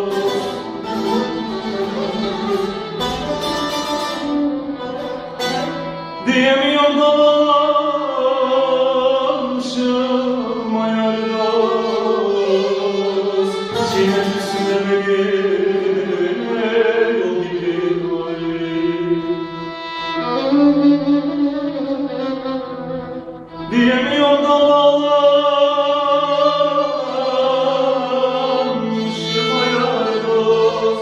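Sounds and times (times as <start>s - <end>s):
plucked and bowed strings: 0.0s - 31.0s
person singing long melisma: 6.0s - 21.4s, 23.4s - 31.0s.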